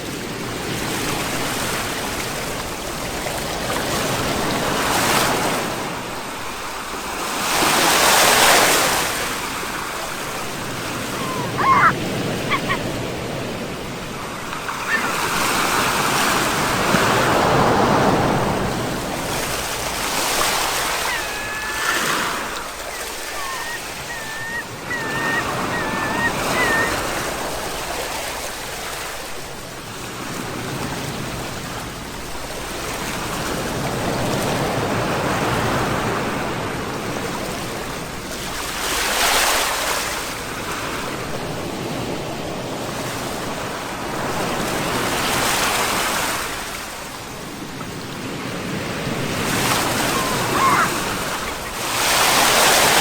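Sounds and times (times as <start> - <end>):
sea waves washing onto shore: 0.0 - 53.0
faint high wavering chirp: 22.6 - 27.1.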